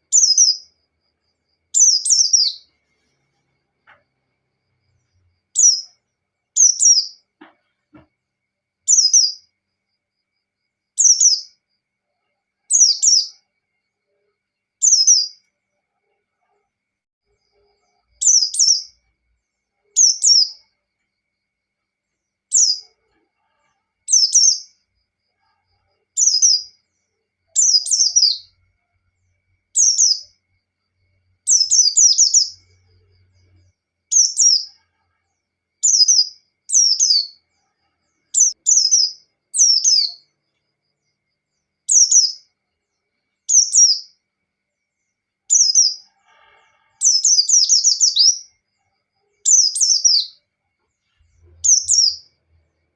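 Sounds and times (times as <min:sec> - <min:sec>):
bird singing high chirps: 0:00.0 - 0:00.8, 0:01.7 - 0:02.8, 0:05.5 - 0:07.3, 0:08.9 - 0:09.5, 0:11.0 - 0:11.6, 0:12.7 - 0:13.4, 0:14.8 - 0:15.5, 0:17.6 - 0:19.0, 0:19.8 - 0:20.7, 0:22.5 - 0:23.0, 0:24.0 - 0:24.8, 0:26.1 - 0:26.8, 0:27.5 - 0:28.6, 0:29.8 - 0:30.4, 0:31.5 - 0:34.8, 0:35.8 - 0:37.5, 0:38.3 - 0:40.3, 0:41.9 - 0:42.5, 0:43.4 - 0:44.2, 0:45.5 - 0:46.1, 0:47.0 - 0:48.6, 0:49.4 - 0:50.4, 0:51.3 - 0:52.4.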